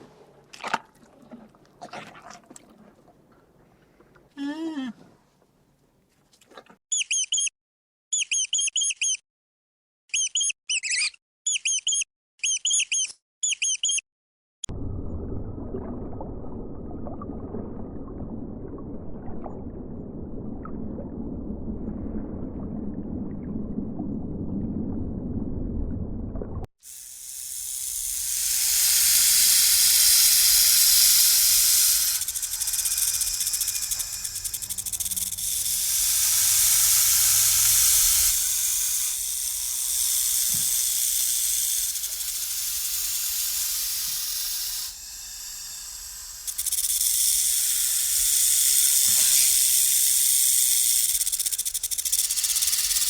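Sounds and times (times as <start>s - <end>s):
low rumbling: 14.7s - 26.7s
snake hissing: 26.9s - 53.0s.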